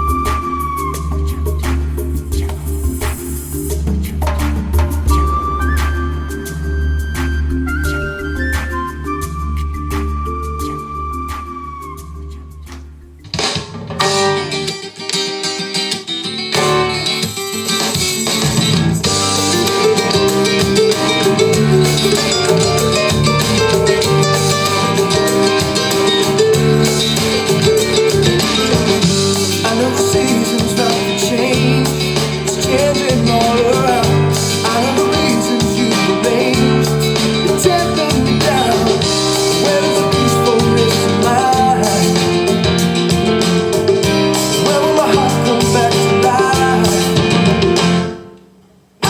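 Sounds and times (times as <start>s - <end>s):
guitar-led band song: 13.4s - 48.3s.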